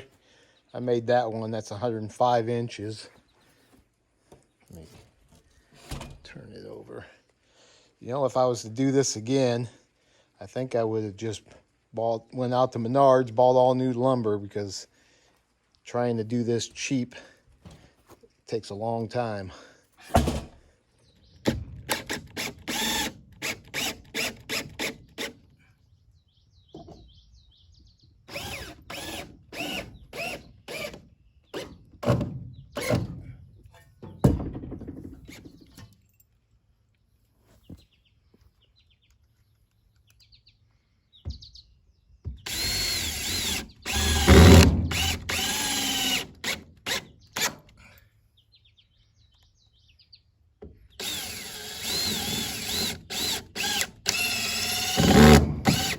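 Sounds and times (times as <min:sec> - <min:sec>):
cordless drill driving screws: 0:21.4 - 0:25.4, 0:28.3 - 0:31.8, 0:42.4 - 0:47.7, 0:51.0 - 0:55.9.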